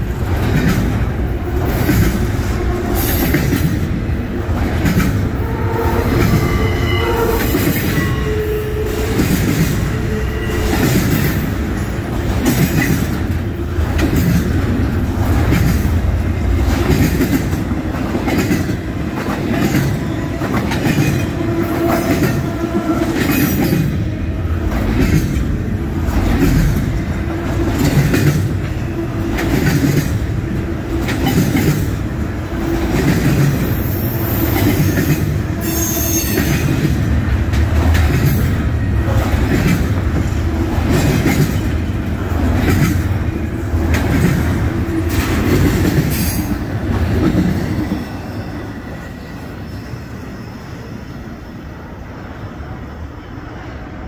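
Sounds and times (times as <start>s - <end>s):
wheels clacking over rail joints: 0.0s - 6.7s, 7.4s - 48.0s
train wheels rumbling: 0.0s - 54.0s
high-pitched wheel squeals: 5.4s - 11.4s, 35.6s - 36.8s, 47.8s - 51.2s.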